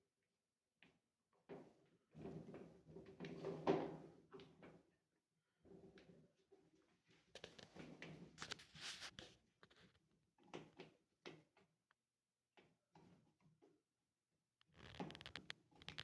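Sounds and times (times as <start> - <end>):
hand tool scraping plastic: 14.6 - 16.0.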